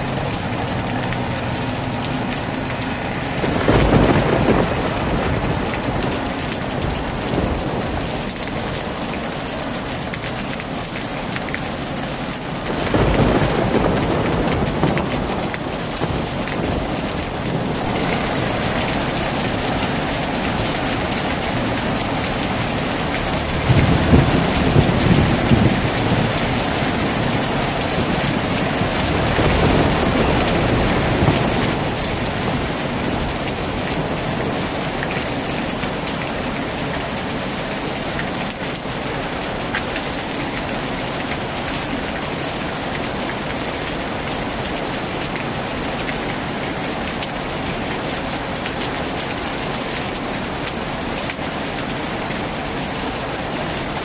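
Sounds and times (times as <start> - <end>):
heavy rain falling: 0.0 - 54.0
low rumble of thunder: 3.4 - 8.3, 12.7 - 35.0.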